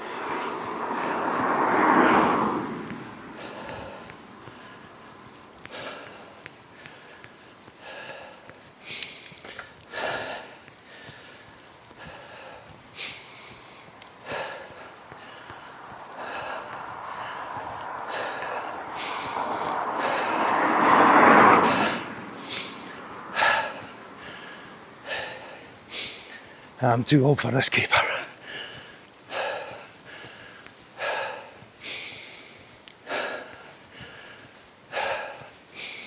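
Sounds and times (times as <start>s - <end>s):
vehicle passing: 0.0s - 8.6s, 12.1s - 27.1s
cyclist panting hard: 0.0s - 26.9s, 27.9s - 36.0s.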